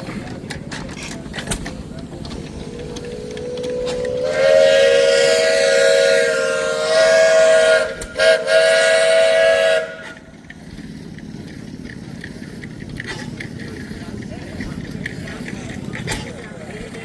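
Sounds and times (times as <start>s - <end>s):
steam whistle blowing: 3.4s - 10.2s.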